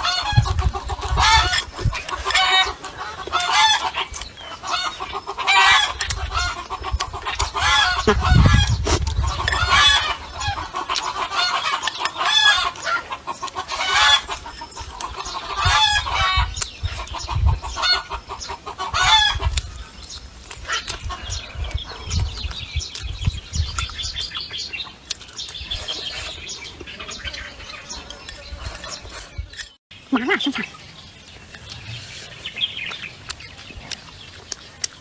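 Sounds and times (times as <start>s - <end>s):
hen cackling: 0.0s - 19.5s.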